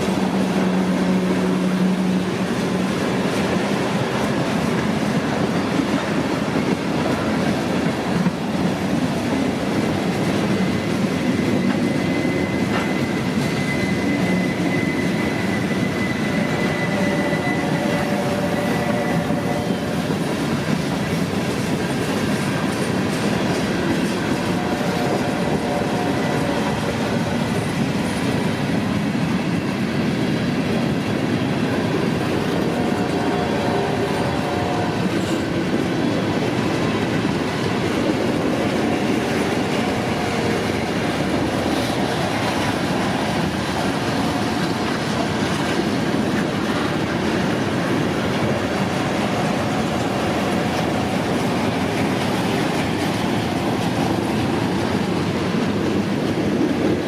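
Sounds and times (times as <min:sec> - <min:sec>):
freight train wheels rumbling: 0:00.0 - 0:57.0
wheel squeal: 0:10.6 - 0:19.2.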